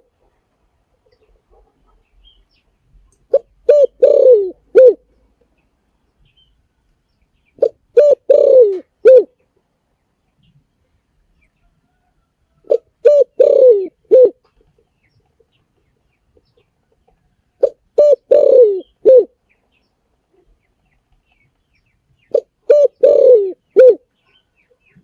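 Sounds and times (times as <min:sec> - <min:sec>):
dove cooing: 0:03.3 - 0:05.1, 0:07.6 - 0:09.4, 0:12.6 - 0:14.5, 0:17.6 - 0:19.4, 0:22.3 - 0:24.1.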